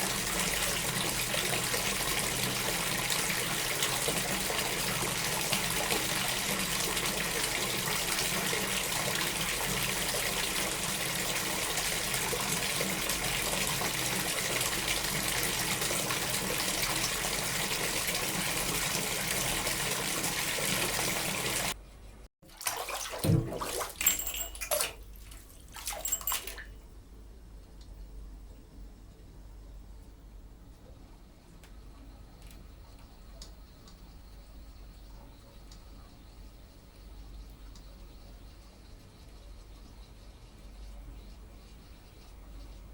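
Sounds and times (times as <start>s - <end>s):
water running from tap: 0.0s - 21.8s, 22.5s - 26.7s.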